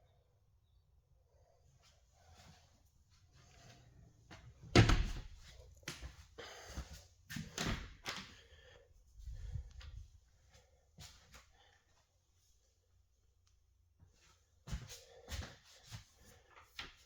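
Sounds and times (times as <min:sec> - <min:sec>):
knocks and thuds in a room: 0:04.3 - 0:06.2.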